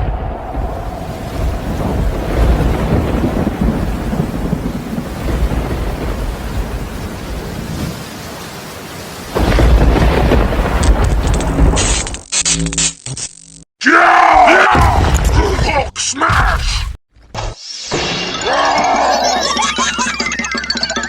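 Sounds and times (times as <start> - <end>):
thunder rumbling: 0.0 - 12.1
rain falling: 0.2 - 12.3.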